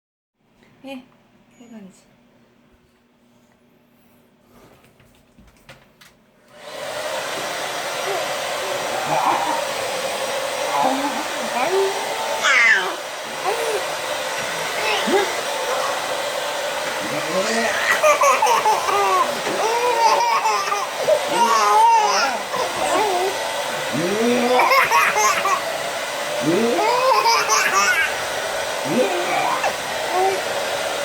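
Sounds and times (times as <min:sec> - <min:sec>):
hair dryer running: 0:06.5 - 0:31.0
baby squealing and giggling: 0:12.3 - 0:14.0, 0:17.0 - 0:23.4, 0:24.0 - 0:25.7, 0:26.4 - 0:28.2, 0:28.8 - 0:30.6.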